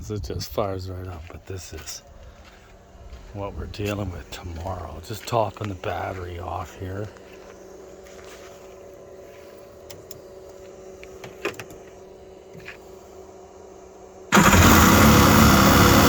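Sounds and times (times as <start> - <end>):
faint steady hum: 0.0 - 16.0
engine starter cranking: 14.3 - 16.0.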